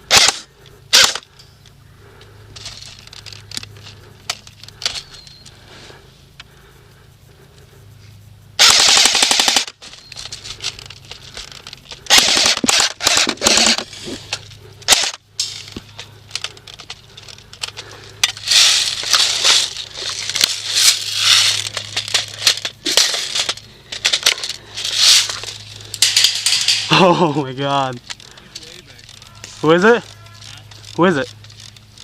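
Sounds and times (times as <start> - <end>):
airsoft guns firing bursts: 0.1 - 1.2, 8.6 - 9.8, 12.1 - 13.8.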